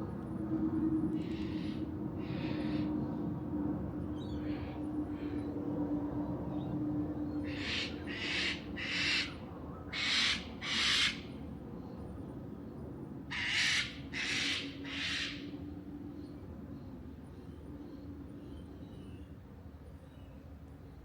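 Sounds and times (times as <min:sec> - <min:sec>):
bird harsh raspy calls: 0:07.4 - 0:11.3, 0:13.3 - 0:15.4.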